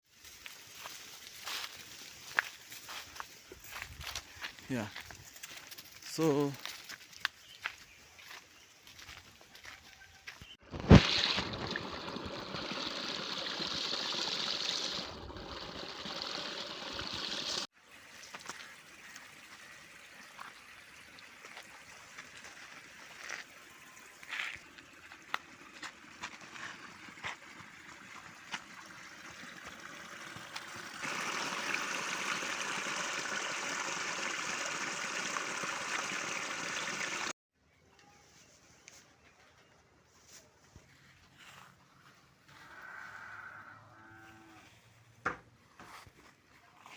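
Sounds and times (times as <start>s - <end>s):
water trickling: 10.8s - 37.3s.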